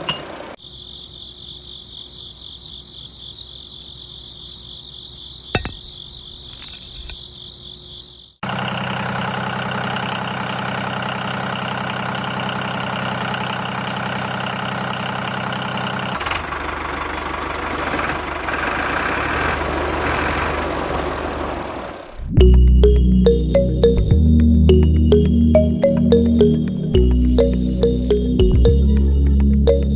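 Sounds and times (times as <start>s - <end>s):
crickets chirping: 0.2s - 8.5s, 26.6s - 28.5s.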